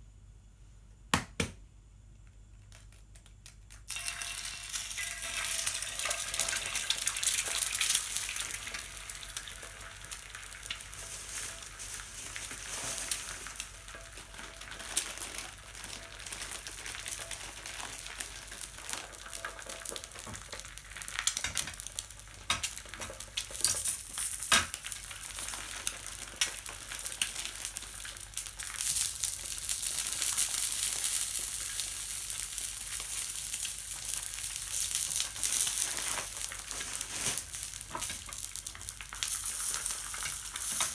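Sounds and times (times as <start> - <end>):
sharp pops and clicks: 2.2 - 4.0
food sizzling in a frying pan: 3.9 - 40.9.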